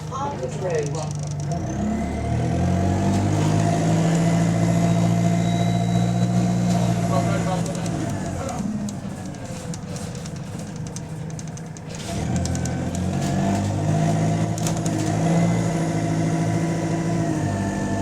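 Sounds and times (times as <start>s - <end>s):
diesel bus engine: 0.0s - 18.0s
light clicks and rattles: 0.2s - 1.6s, 7.6s - 13.8s.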